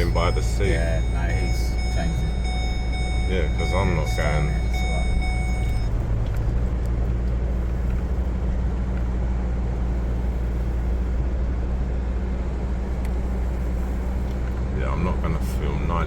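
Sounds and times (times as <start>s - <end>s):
high steady tone: 0.0s - 6.0s
truck engine and tyre rumble: 0.0s - 16.0s.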